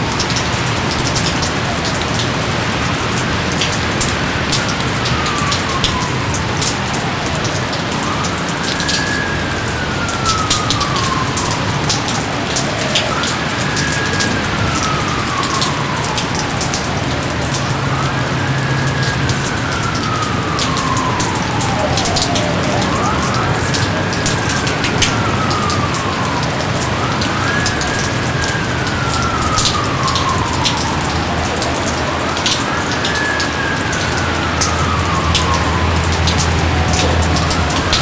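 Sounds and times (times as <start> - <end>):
heavy rain: 0.0 - 38.0
wailing tone: 8.8 - 38.0.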